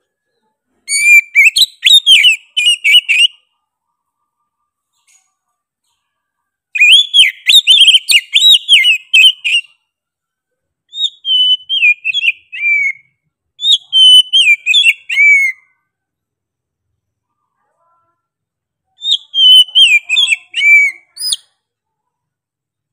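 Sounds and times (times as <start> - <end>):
bird singing whistled notes: 0.9 - 3.6, 6.8 - 9.8, 10.9 - 15.7, 19.0 - 21.6.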